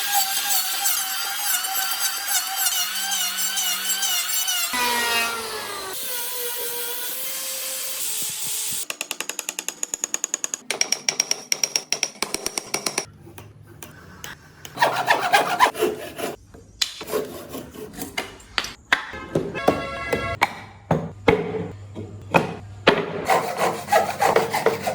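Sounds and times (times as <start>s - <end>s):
scraping strokes on wood: 23.3s - 24.9s.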